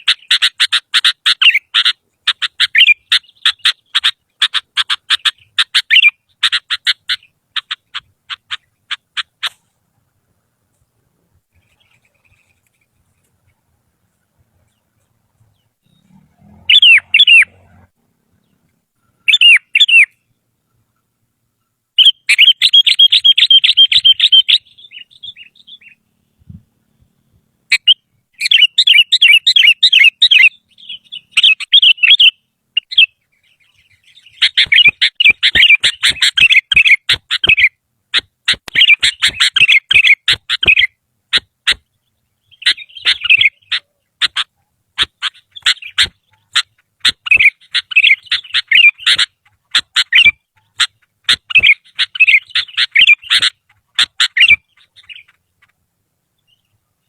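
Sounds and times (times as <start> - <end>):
bird singing warbling chirps: 14.6 - 37.8, 41.8 - 44.2, 51.4 - 53.5.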